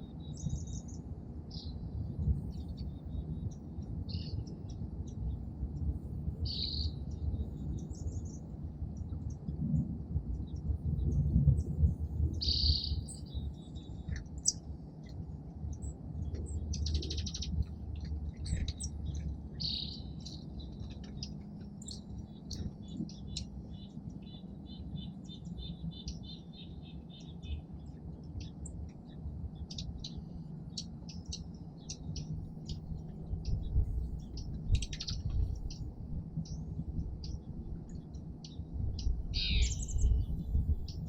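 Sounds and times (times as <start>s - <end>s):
songbirds chirping: 0.0s - 41.0s
steady low rumble: 0.0s - 41.0s
rapid repeated bird notes: 12.4s - 41.0s.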